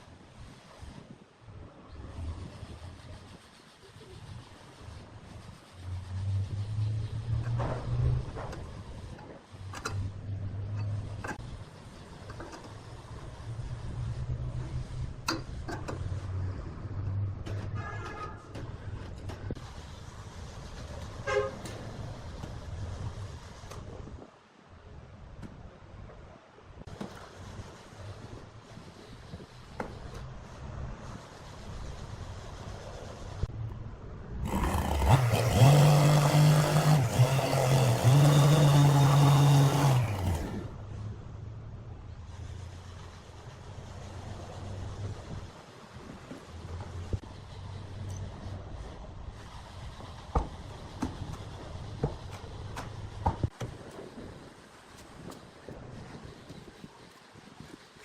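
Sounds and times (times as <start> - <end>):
hiss: 0.0 - 16.9, 19.5 - 24.2, 26.8 - 33.5, 42.1 - 58.0
low mechanical hum: 0.0 - 58.0
power tool droning: 34.4 - 40.8.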